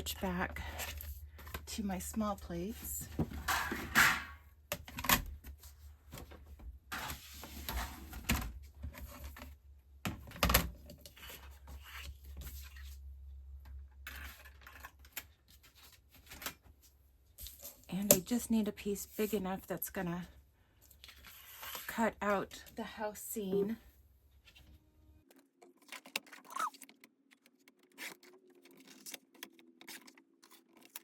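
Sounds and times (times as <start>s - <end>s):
paper rustling and sliding: 6.9s - 8.3s.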